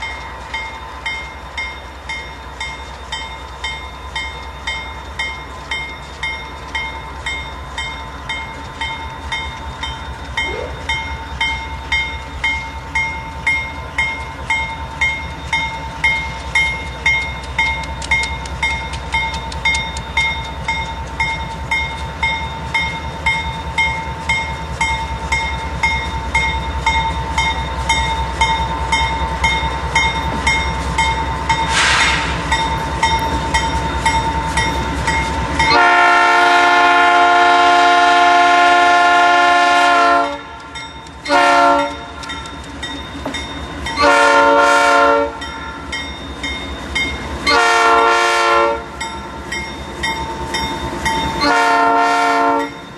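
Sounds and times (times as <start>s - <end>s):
train wheels clattering on rails: 0.0s - 37.8s, 38.5s - 52.9s
locomotive air horn blasts: 35.7s - 40.6s, 41.3s - 42.1s, 44.0s - 45.4s, 47.5s - 48.9s, 51.4s - 52.8s.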